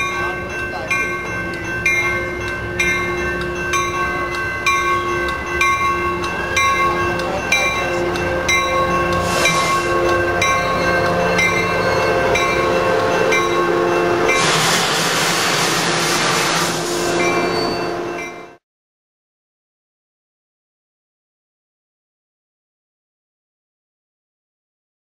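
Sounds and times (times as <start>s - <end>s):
bell striking: 0.0s - 14.6s, 16.9s - 18.6s
train cars rolling past: 0.0s - 18.6s
train horn chords: 6.0s - 18.6s.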